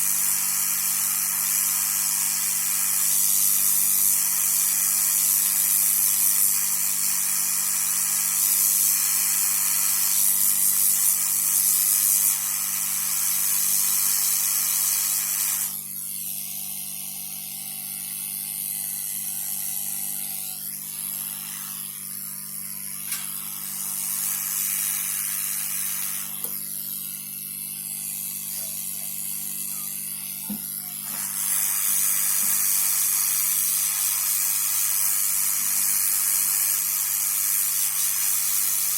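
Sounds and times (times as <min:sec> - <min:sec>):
hot-air station hissing: 0:00.0 - 0:16.0, 0:18.8 - 0:38.9.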